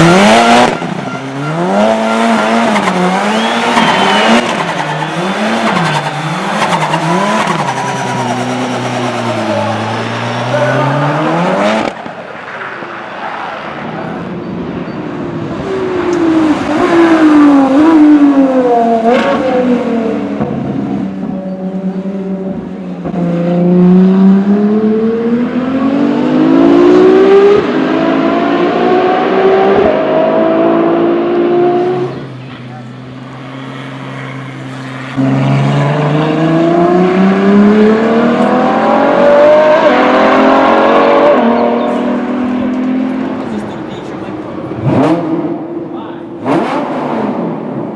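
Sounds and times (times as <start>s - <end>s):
car engine accelerating: 0.0s - 12.6s, 13.4s - 47.9s
car engine driving past: 1.5s - 12.6s.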